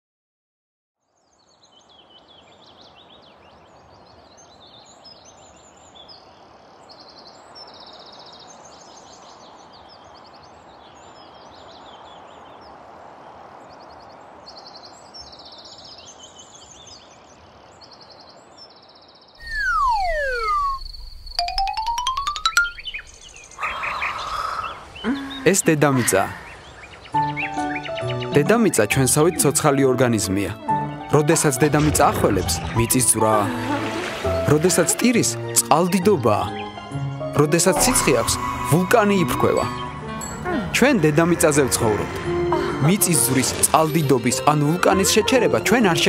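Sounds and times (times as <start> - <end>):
birds chirping: 1.1 - 46.0
sliding whistle falling in pitch: 19.4 - 21.0.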